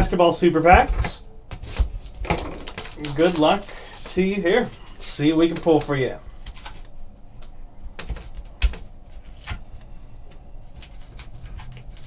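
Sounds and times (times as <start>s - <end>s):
packaging and cards rustling: 0.0s - 12.0s.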